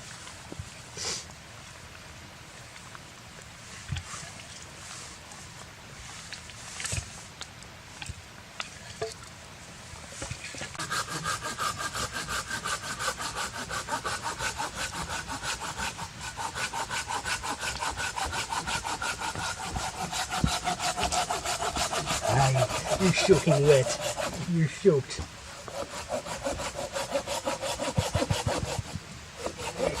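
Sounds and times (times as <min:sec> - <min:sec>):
hand saw cutting wood: 0:10.7 - 0:30.0.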